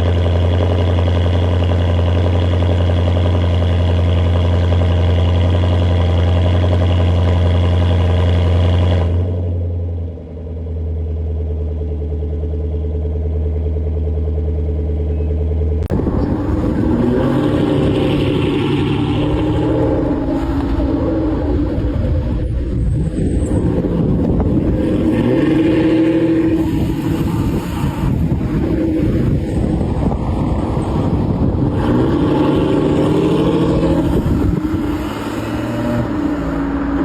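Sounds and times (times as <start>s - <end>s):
deep car engine note: 0.0s - 37.0s
car engine revving roughly: 15.9s - 37.0s.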